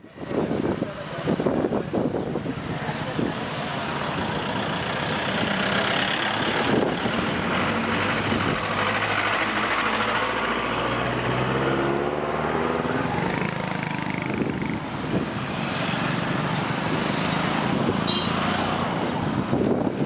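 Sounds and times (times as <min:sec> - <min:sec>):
traffic noise rushing: 0:00.0 - 0:20.0
vehicle engine passing: 0:03.1 - 0:19.4.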